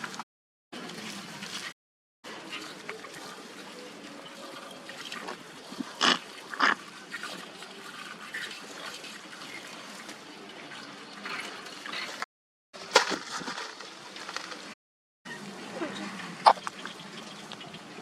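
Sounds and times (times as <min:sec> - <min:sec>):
wet chewing and sucking: 0:05.2 - 0:07.4.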